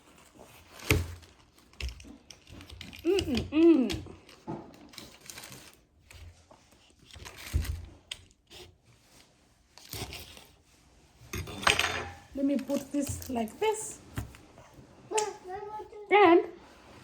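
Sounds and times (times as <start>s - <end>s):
paper wrapping crinkling and tearing: 0.0s - 8.6s.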